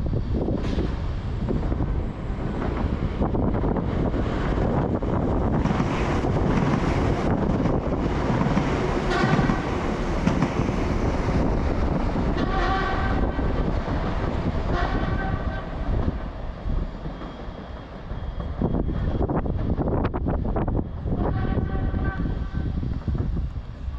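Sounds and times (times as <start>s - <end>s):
rumble of train wheels on rail: 0.0s - 23.9s
train horn: 9.0s - 9.8s, 12.4s - 13.5s, 14.7s - 15.8s, 21.2s - 22.7s.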